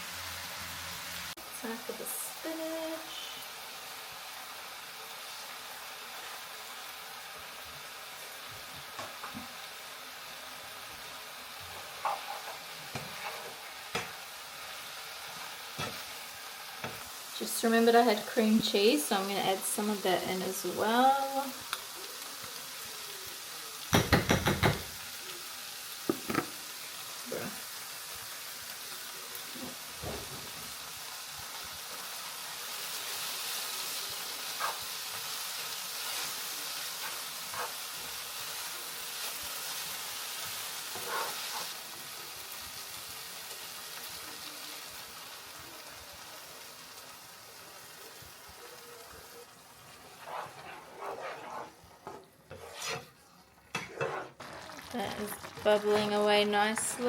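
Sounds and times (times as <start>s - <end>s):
food sizzling in a pan: 0.0s - 57.0s
sauce bubbling: 47.7s - 57.0s.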